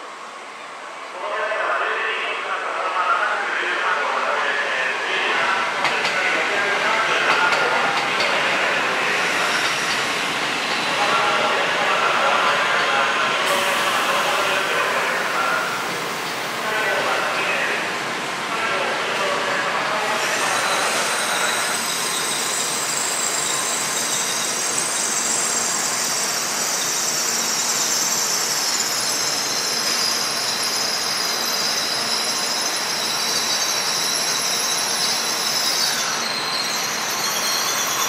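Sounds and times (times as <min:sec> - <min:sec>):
train rushing noise: 0:01.9 - 0:38.0
train high-pitched squeal: 0:08.9 - 0:11.6, 0:20.0 - 0:38.0.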